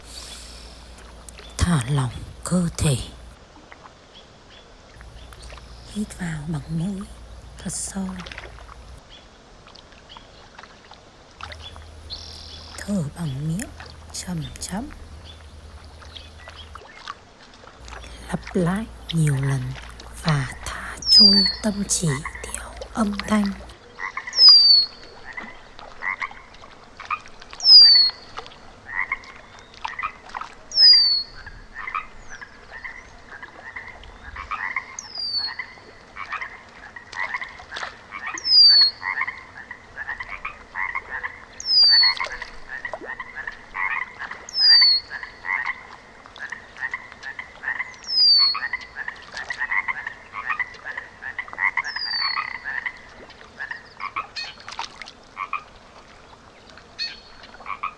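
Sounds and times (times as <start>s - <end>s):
frogs croaking: 0.0s - 3.4s, 5.0s - 9.0s, 11.5s - 16.9s, 17.8s - 24.1s.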